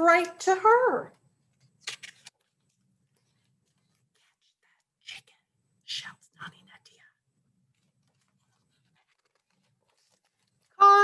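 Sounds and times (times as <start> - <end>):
woman reading aloud: 0.0 - 1.2, 10.8 - 11.0.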